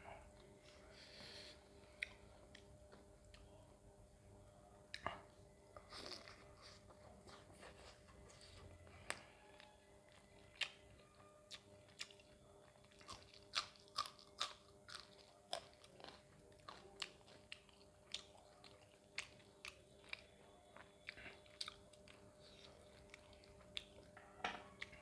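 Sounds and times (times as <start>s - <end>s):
chewing and mouth sounds: 9.1s - 24.1s.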